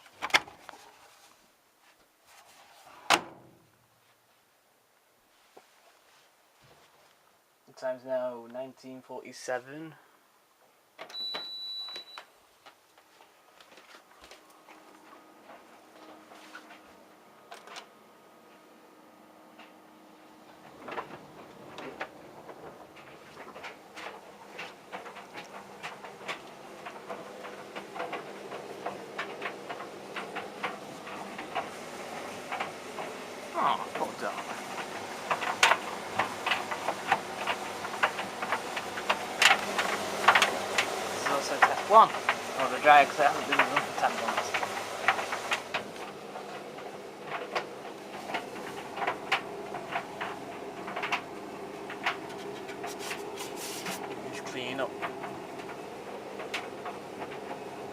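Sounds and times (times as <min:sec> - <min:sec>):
tumble dryer motor hum: 0:14.2 - 0:57.9
clothes knocking in dryer drum: 0:20.6 - 0:57.9.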